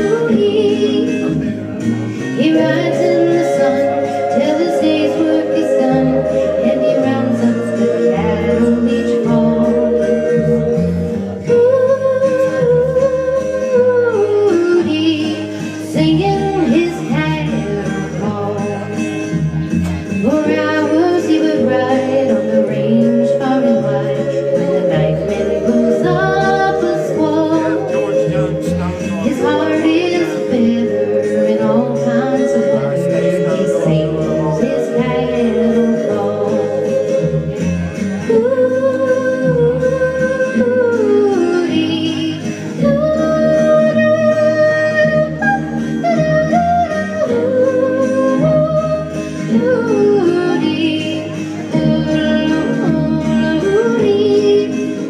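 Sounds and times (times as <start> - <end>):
guitar: 0.0 - 55.0
person singing and yodeling: 2.2 - 19.2, 20.2 - 55.0.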